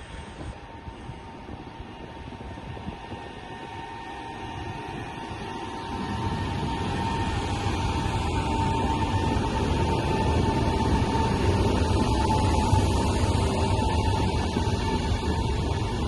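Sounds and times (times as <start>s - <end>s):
electric train rumble: 0.0s - 16.0s
train whine: 0.0s - 16.0s.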